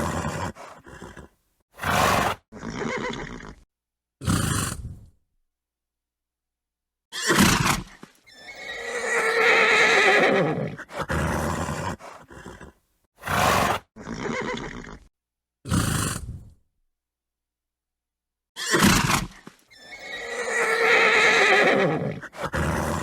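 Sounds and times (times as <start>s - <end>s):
horse neighing: 0.0s - 3.6s, 7.1s - 15.1s, 18.6s - 23.0s
horse snorting: 0.0s - 3.6s, 4.2s - 5.1s, 7.3s - 15.1s, 15.7s - 16.6s, 18.6s - 23.0s.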